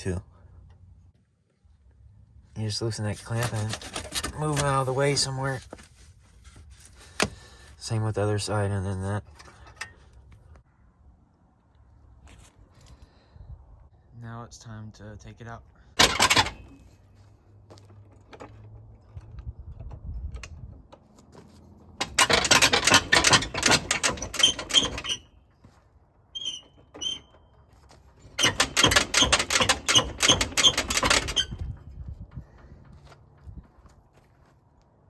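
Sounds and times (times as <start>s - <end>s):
short squeaks: 22.0s - 32.7s.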